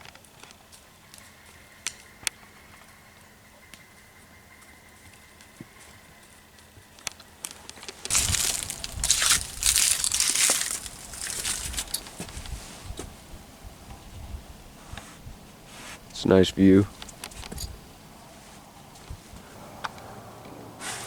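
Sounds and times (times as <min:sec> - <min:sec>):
loud crunching and crinkling: 0:07.4 - 0:12.6.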